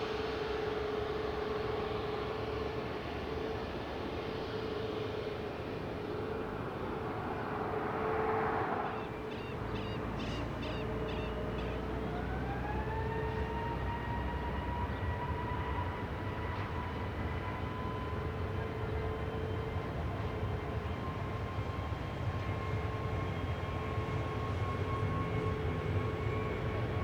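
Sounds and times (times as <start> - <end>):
jet engines whining: 1.1 - 10.1.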